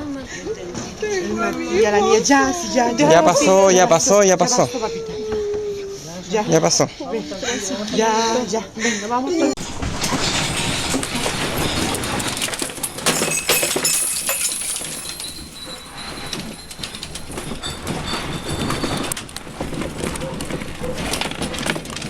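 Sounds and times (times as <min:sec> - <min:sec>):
earthquake rumble: 0:09.6 - 0:22.0
objects rattling and clattering: 0:09.6 - 0:22.0
glass clinking: 0:11.5 - 0:19.4.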